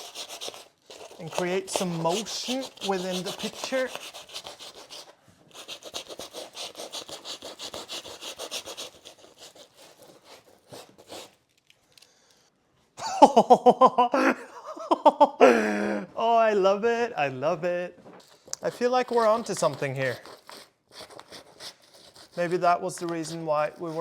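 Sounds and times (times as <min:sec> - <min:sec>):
sandpaper rubbing on canvas: 0:00.0 - 0:11.4, 0:18.3 - 0:24.0
man laughing loudly: 0:13.0 - 0:16.2.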